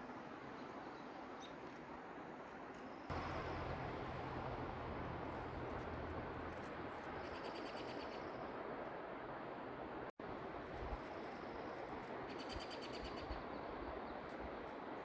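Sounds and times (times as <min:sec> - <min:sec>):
low rumble: 0:03.1 - 0:07.3.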